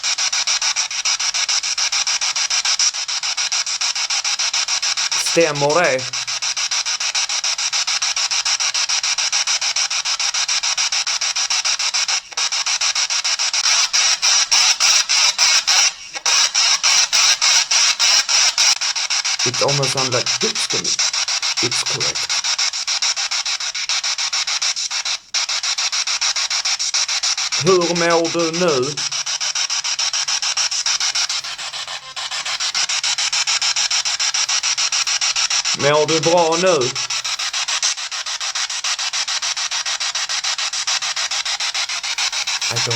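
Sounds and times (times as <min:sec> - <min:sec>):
pulsing radio static: 0:05.1 - 0:06.4, 0:13.6 - 0:18.8, 0:19.4 - 0:22.5, 0:27.5 - 0:38.0, 0:41.6 - 0:42.9.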